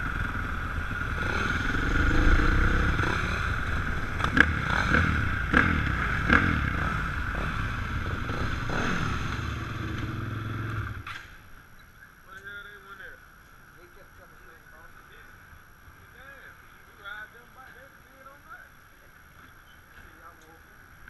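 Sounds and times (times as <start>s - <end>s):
dirt bike engine revving: 0.0s - 11.2s.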